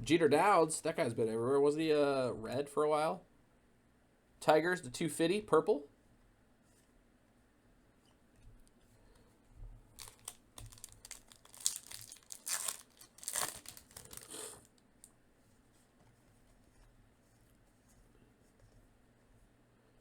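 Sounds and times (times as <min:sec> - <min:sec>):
wrapper tearing and crumpling: 0:10.0 - 0:14.8.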